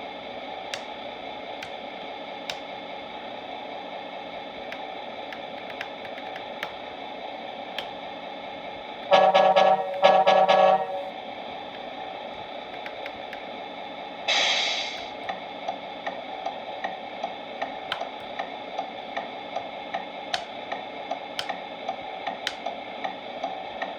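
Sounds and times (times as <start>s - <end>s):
synthesized diesel idle hum: 0.0s - 23.4s
air horn blasts: 9.1s - 11.1s
hiss of released air: 14.3s - 15.2s.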